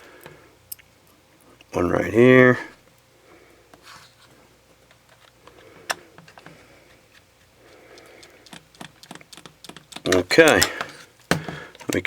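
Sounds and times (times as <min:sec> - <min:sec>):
screwdriver clicks and ticks: 0:08.0 - 0:10.8.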